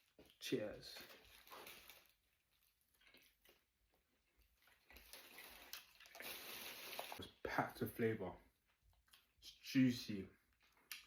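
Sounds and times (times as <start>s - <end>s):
person chewing food: 2.6s - 7.2s.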